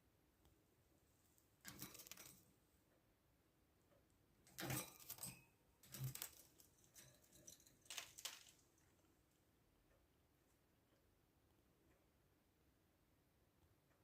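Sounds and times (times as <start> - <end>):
faint clicks and rattles: 1.3 - 3.1, 3.7 - 10.6.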